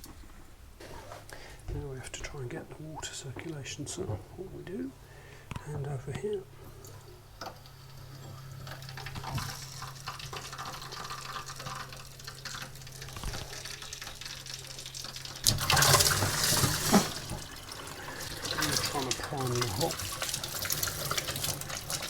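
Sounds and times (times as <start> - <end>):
steady low hum: 0.2 - 13.1
water running from a tap: 6.4 - 22.0.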